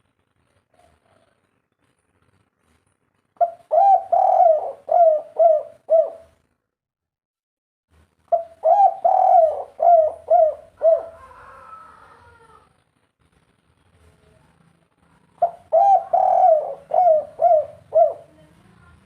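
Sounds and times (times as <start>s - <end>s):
dove cooing: 3.4s - 6.4s, 8.3s - 12.7s, 15.4s - 18.7s.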